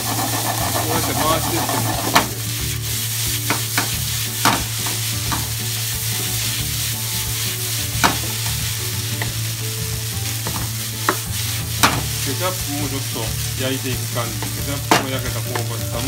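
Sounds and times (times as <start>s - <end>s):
rice sizzling in a frying pan: 0.0s - 16.0s
wooden spatula stirring: 0.0s - 16.0s.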